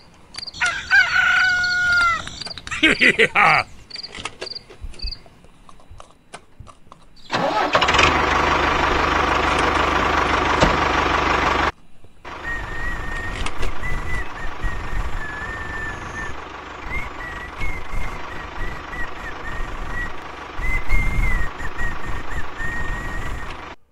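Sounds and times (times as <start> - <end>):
tractor engine running: 7.3 - 23.9
high whine: 12.3 - 23.8.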